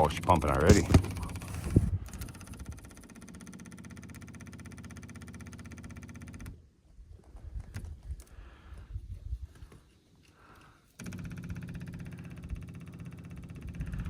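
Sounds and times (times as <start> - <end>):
fuel pump pulsing hum: 0.0 - 6.6, 10.4 - 14.0.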